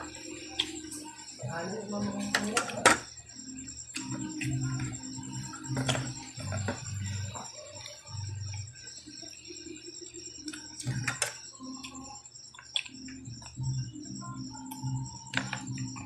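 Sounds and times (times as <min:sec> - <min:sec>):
night insects chirping: 0:00.0 - 0:16.0
chewing and lip-smacking: 0:10.4 - 0:13.6.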